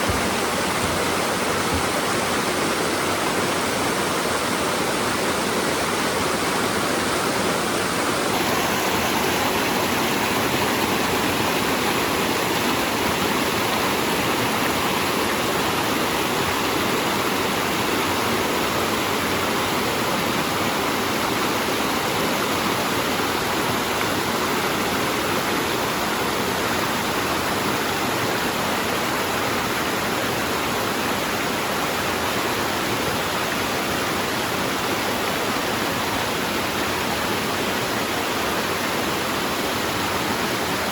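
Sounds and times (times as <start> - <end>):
rushing water over rocks: 0.0 - 40.9.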